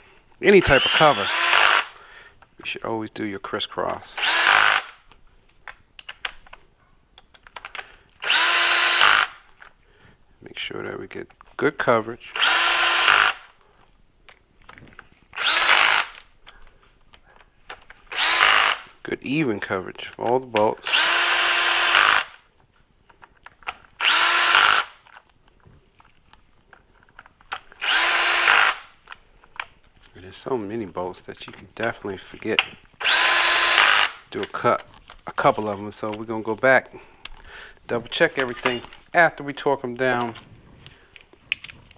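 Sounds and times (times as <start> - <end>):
power drill bursts: 0.6 - 2.0, 4.1 - 5.0, 8.2 - 9.4, 12.3 - 13.5, 15.3 - 16.2, 18.1 - 19.0, 20.8 - 22.4, 24.0 - 25.0, 27.8 - 28.9, 33.0 - 34.3
tools and bolts clicking: 38.3 - 39.2, 41.1 - 41.9.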